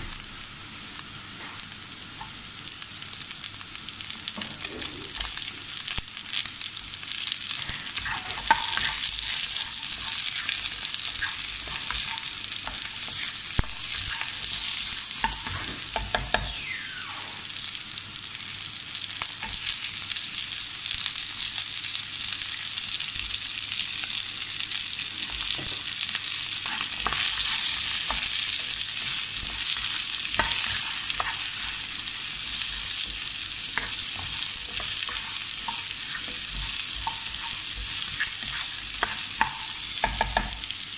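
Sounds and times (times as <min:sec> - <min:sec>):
food sizzling in a wok: 0:00.0 - 0:40.9
spatula scraping a pan: 0:07.6 - 0:16.1, 0:26.6 - 0:40.5.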